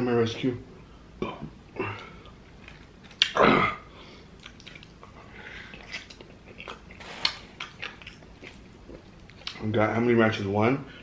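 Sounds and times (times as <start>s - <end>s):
person chewing food: 1.8s - 3.4s, 4.0s - 9.6s
lip smacks: 2.0s - 3.4s, 4.3s - 9.6s.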